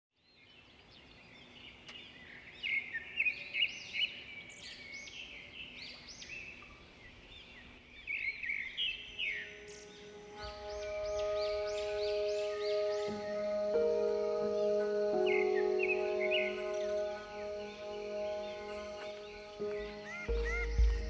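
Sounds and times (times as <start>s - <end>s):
birds chirping: 0.2s - 21.0s
soft held music notes: 8.8s - 21.0s.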